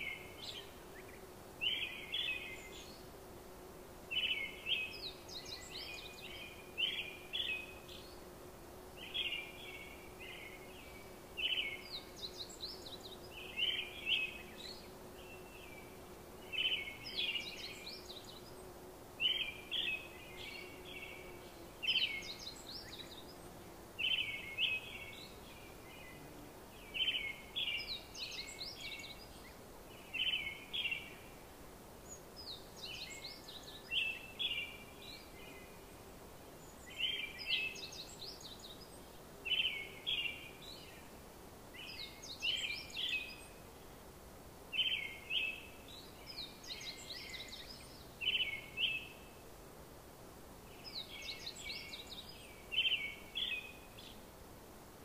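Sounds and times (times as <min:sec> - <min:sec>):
bird chirping: 0:50.7 - 0:54.2.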